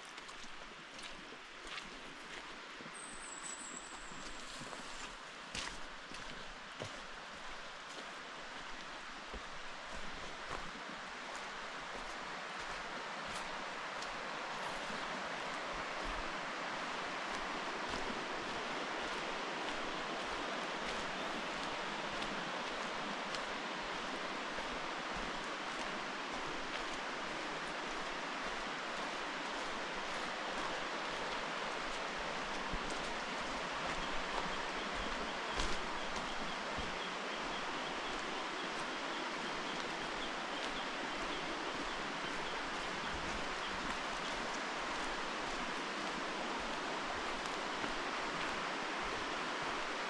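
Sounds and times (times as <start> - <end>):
footsteps on trail: 0.0 - 50.0
faint high chirp: 2.9 - 5.0
forest rushing noise: 3.8 - 50.0.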